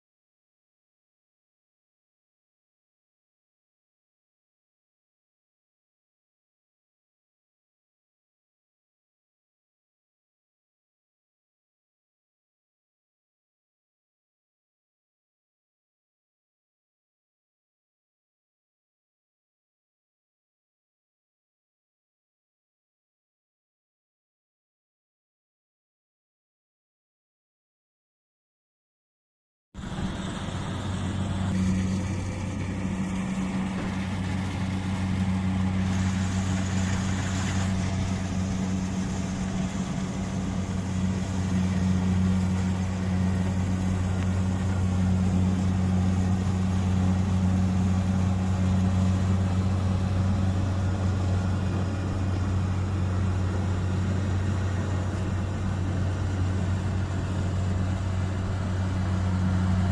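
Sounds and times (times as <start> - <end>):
combine harvester diesel engine running: 29.8 - 59.9.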